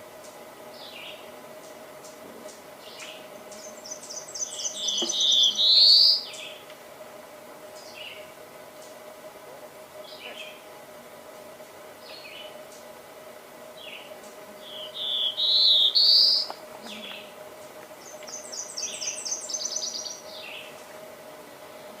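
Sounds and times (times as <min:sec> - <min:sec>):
warbler buzzy song: 0:00.0 - 0:06.8, 0:07.6 - 0:09.2, 0:09.8 - 0:22.0
faint steady hum: 0:00.0 - 0:22.0
other birds chirping: 0:02.0 - 0:06.6, 0:13.8 - 0:20.8.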